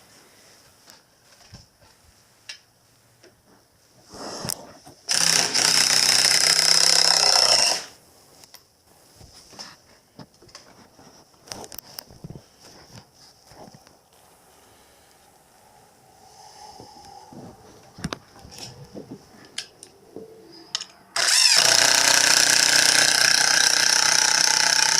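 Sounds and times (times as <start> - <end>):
small motor tool running: 5.1 - 7.9, 21.2 - 24.9.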